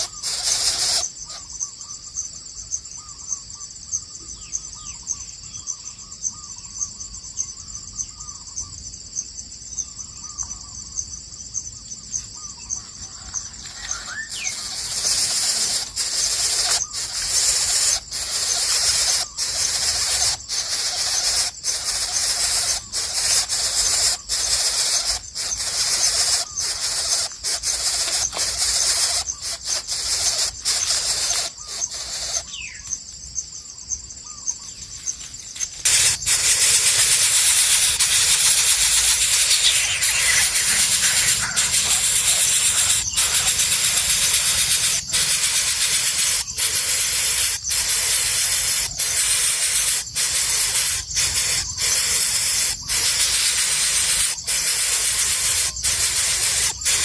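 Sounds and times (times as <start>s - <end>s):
loud high hissing: 0.0s - 1.4s, 13.8s - 32.6s, 35.6s - 57.0s
faint bird calls: 0.0s - 2.1s, 12.1s - 33.0s, 34.2s - 34.9s, 35.6s - 57.0s
insects trilling chorus: 0.0s - 57.0s.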